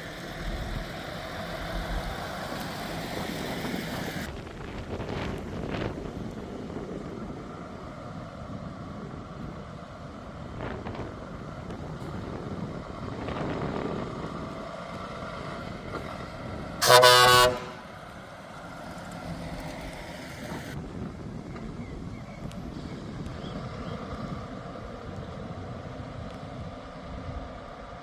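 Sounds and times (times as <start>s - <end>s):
truck engines rumbling: 0.0s - 28.0s
truck horn blast: 16.8s - 17.9s.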